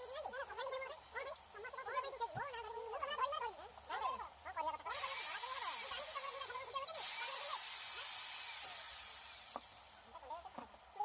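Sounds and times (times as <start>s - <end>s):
pressure washer spraying water: 4.9s - 10.0s.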